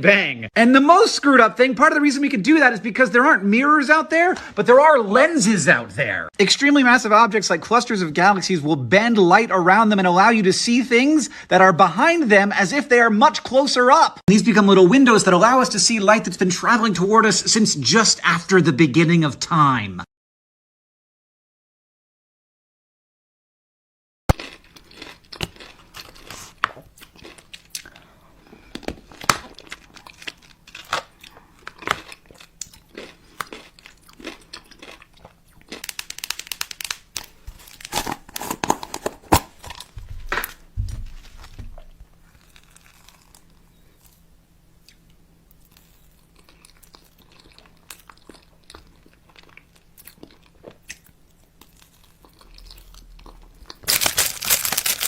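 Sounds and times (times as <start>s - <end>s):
crunching and crackling: 24.3s - 55.0s.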